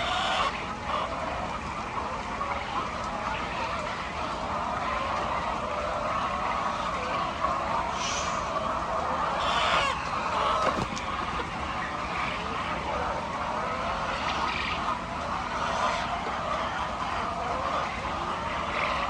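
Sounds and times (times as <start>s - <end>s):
flock of hens clucking: 0.0s - 19.0s
sharp hen calls: 6.6s - 12.6s.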